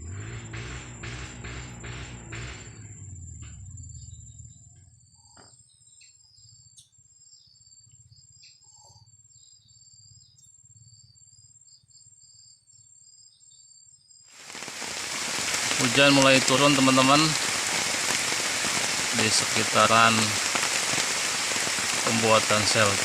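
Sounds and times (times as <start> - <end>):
high-pitched insect trill: 2.7 - 23.0
heavy rain: 14.4 - 23.0.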